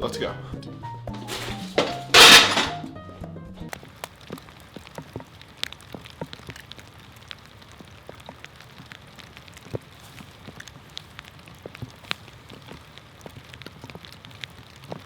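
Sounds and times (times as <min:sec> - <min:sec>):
crackling hiss: 0:03.7 - 0:15.0.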